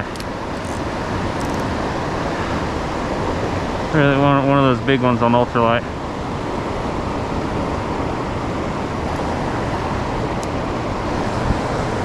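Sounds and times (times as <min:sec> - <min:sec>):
fast-flowing water rushing: 0:00.0 - 0:12.0.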